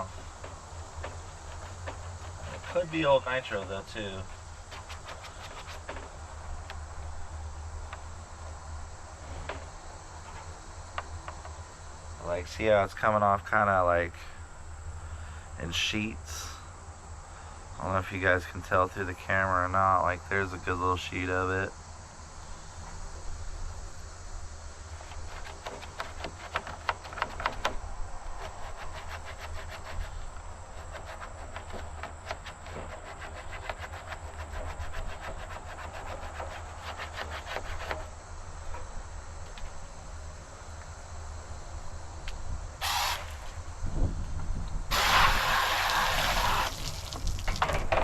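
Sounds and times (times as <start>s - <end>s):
scrubbing on plastic hull: 0.0s - 6.2s, 24.9s - 38.1s, 44.9s - 47.6s
hiss: 42.8s - 43.7s, 44.9s - 47.6s.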